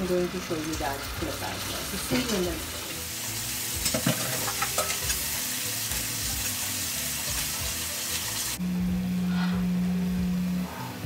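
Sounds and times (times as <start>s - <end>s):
paste sizzling in hot oil: 0.0s - 8.6s.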